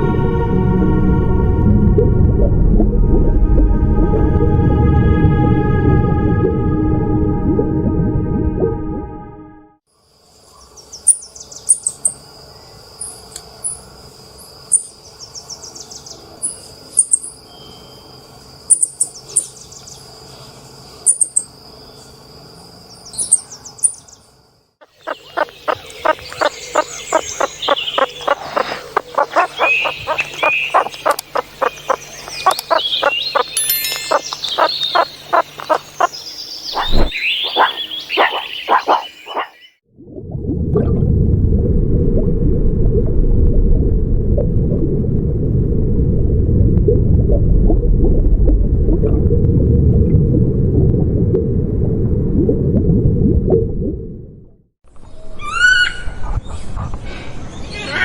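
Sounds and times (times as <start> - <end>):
chorus of birds calling: 24.8 - 39.8
rapid pulsing calls: 24.8 - 39.8.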